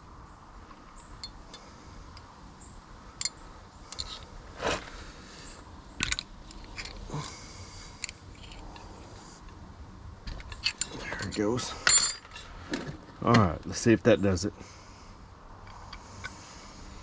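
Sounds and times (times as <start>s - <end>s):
scraping crunch: 4.0s - 5.5s
metallic clinks of tools: 10.4s - 12.5s.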